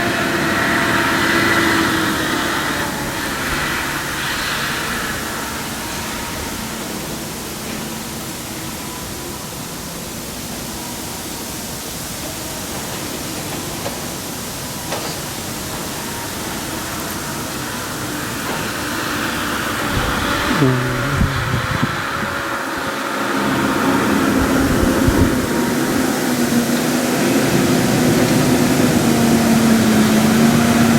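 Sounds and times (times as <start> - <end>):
steady rushing noise: 15.4 - 30.9
faint engine hum: 17.6 - 30.9.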